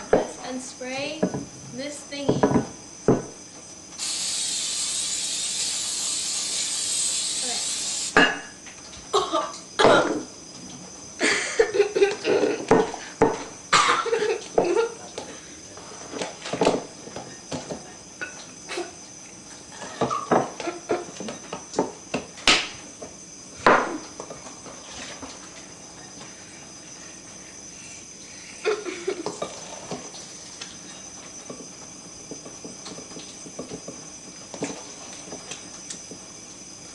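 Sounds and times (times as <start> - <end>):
aerosol spray hissing: 4.0 - 8.2.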